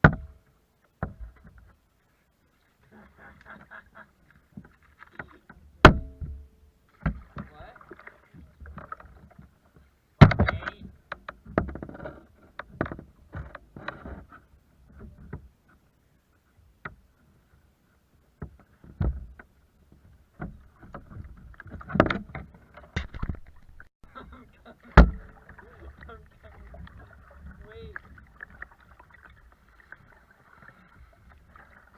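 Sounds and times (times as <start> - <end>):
knocks against kayak hull: 0.0 - 0.4, 5.8 - 6.4, 7.0 - 7.5, 10.2 - 14.0, 18.4 - 19.5, 24.9 - 25.4
water splashing: 2.4 - 11.6, 18.4 - 31.9.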